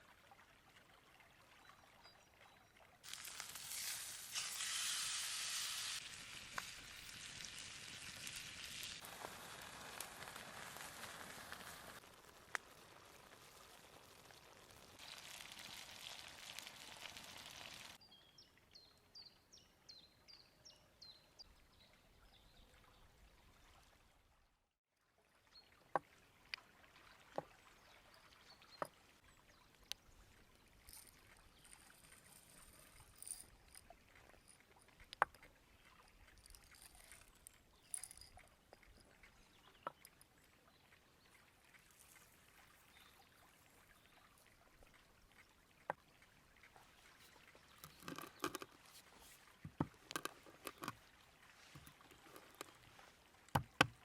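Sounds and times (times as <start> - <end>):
river water flowing: 25.4 - 54.0.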